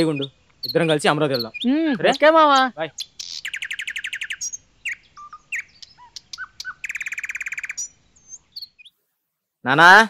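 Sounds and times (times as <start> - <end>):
fast even bird trill: 0.0 - 8.9
songbirds chirping: 0.0 - 10.0.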